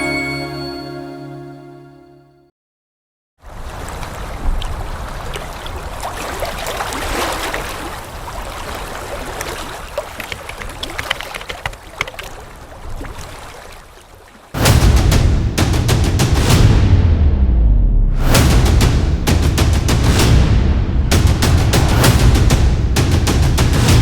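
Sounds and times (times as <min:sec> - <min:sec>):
water rushing and splashing: 0:03.4 - 0:16.4
low rumble: 0:14.6 - 0:24.0.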